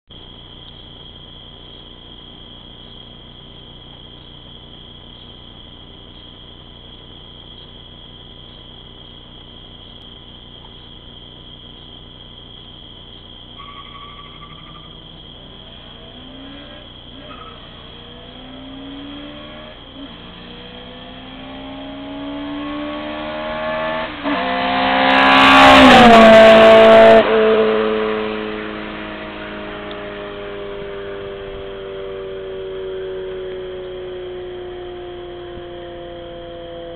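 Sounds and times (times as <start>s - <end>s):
car accelerating through gears: 13.6s - 36.9s.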